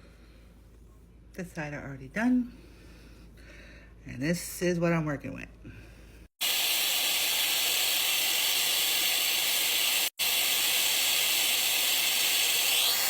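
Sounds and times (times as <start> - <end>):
blow dryer running: 6.4 - 13.0.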